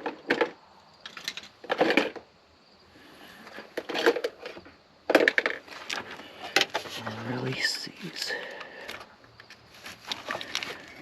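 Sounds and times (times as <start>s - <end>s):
plastic parts clicking and rattling: 0.0s - 2.3s, 3.4s - 7.1s, 8.2s - 11.0s.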